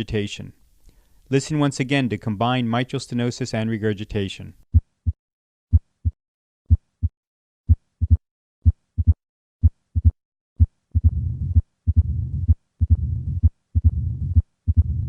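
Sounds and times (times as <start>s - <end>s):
heartbeat through stethoscope: 4.7s - 15.0s
low rumbling heart murmur: 7.7s - 9.2s, 10.0s - 15.0s.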